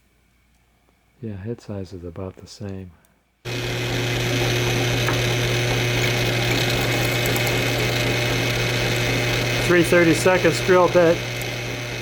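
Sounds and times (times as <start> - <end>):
electric drill running: 3.5 - 12.0.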